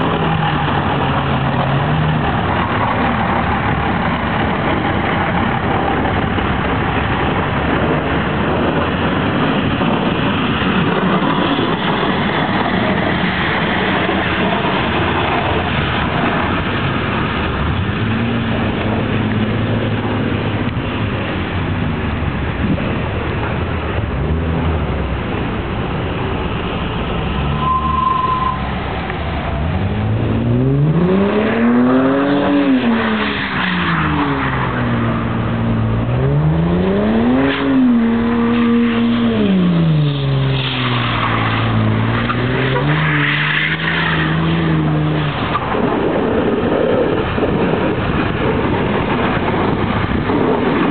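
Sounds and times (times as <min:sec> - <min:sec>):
spinning tyres rushing in snow: 0:00.0 - 0:50.9
car engine revving hard: 0:29.6 - 0:34.4, 0:35.9 - 0:46.4.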